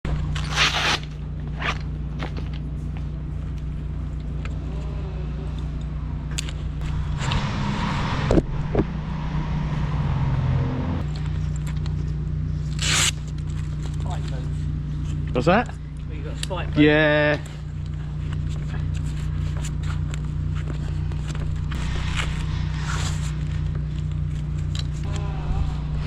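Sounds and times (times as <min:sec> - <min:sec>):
engine idling: 0:01.1 - 0:26.0
loud rushing noise: 0:21.7 - 0:23.8.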